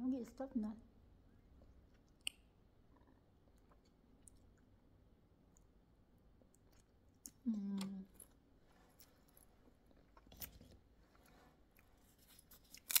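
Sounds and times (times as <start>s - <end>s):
soft chewing: 1.4s - 4.8s, 5.4s - 13.0s.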